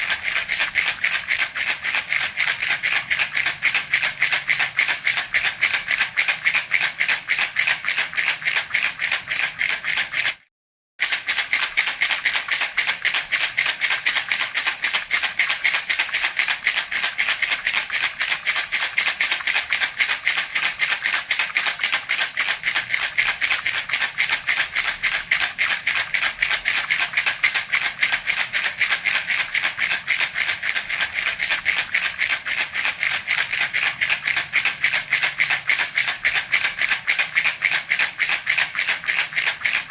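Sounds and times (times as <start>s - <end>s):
baby rattle shaken rapidly: 0.0s - 39.9s.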